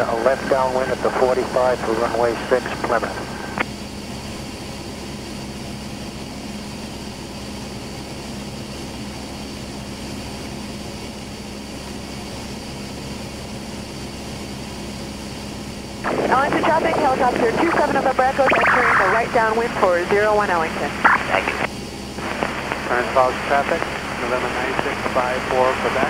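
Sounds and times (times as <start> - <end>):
airplane engine drone in cockpit: 0.0 - 26.0.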